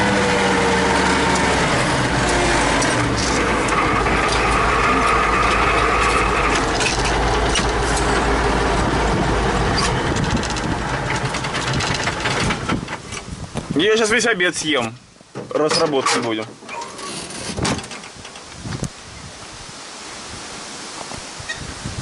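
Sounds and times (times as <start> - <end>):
tractor diesel engine running: 0.0 - 13.8
knocks and rattles: 1.3 - 13.8, 15.3 - 18.8.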